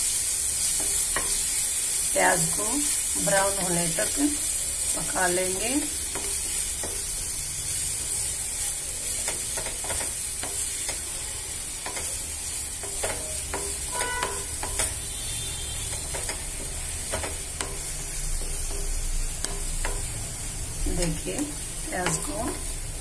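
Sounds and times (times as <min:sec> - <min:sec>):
onion paste sizzling in pan: 0:00.0 - 0:23.0
spatula scraping pan: 0:05.4 - 0:22.8.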